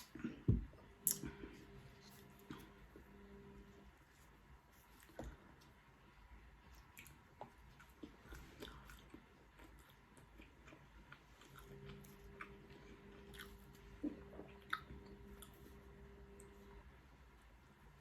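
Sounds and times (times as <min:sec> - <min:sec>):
faint steady hum: 0:00.0 - 0:18.0
person chewing crunchy food: 0:06.6 - 0:16.7.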